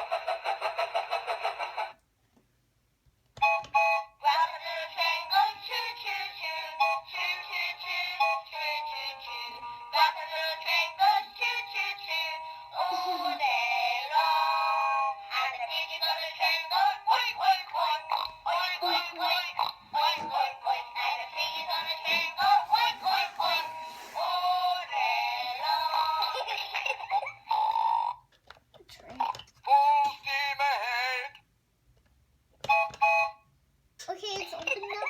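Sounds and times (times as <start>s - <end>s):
tinny electronic toy music: 3.4s - 28.2s.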